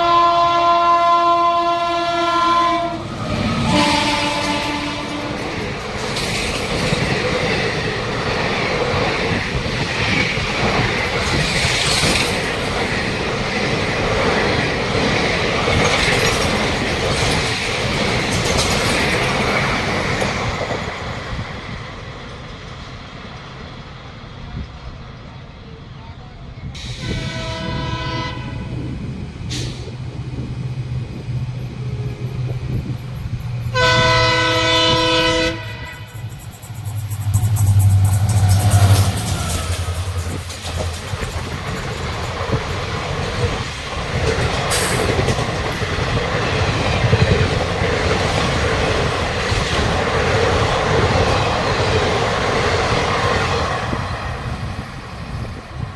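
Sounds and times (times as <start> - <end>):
train horn blasts: 0.0 - 5.6, 26.9 - 28.8, 33.7 - 36.3
low locomotive engine hum: 0.0 - 55.9
train coaches clattering over rails: 2.6 - 23.8, 26.7 - 55.9.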